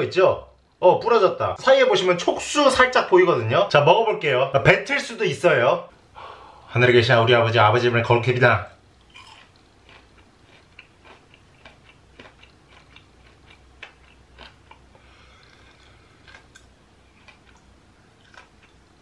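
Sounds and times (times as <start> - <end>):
person chewing with clicks: 8.7 - 18.9.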